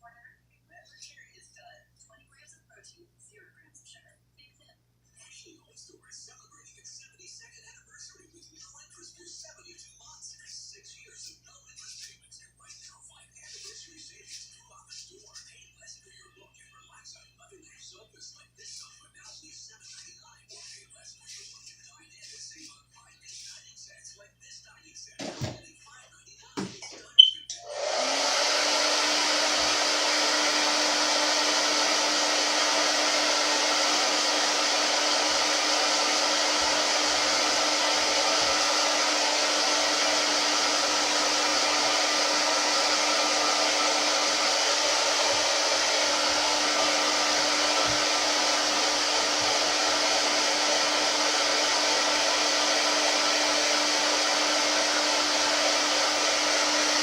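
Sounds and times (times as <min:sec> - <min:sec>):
blow dryer running: 0:25.2 - 0:25.6, 0:26.6 - 0:57.0.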